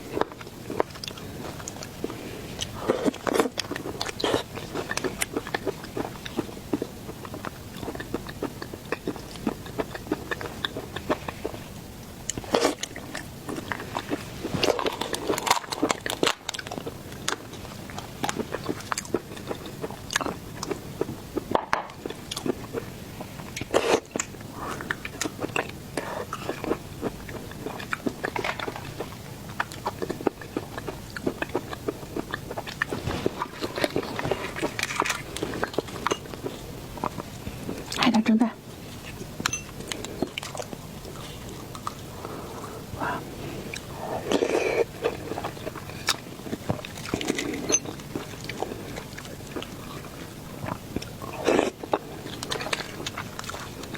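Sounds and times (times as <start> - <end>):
crunching bites and chewing: 0.1 - 11.6, 12.2 - 22.9, 23.5 - 38.0, 43.7 - 53.9.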